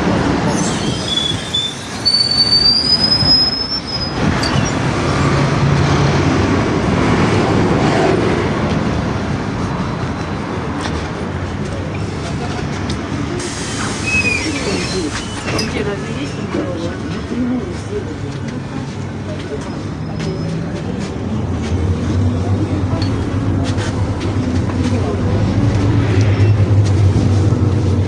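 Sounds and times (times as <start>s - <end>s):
bus engine rumble: 0.0s - 28.0s
high squeal: 0.4s - 5.4s, 13.4s - 15.8s, 25.0s - 28.0s.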